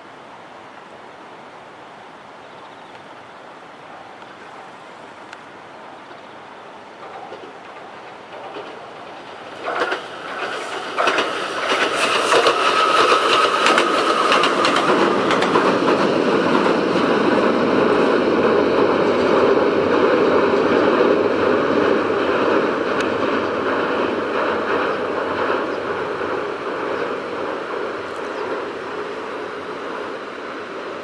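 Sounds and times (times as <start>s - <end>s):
train rumbling on bridge: 0.0s - 31.0s
train wheels clicking over joints: 6.8s - 30.3s.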